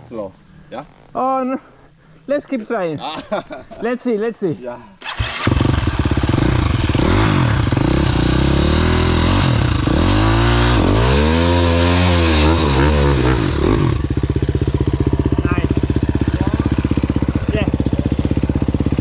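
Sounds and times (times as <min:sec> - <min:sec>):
dirt bike engine revving: 0:05.0 - 0:19.0.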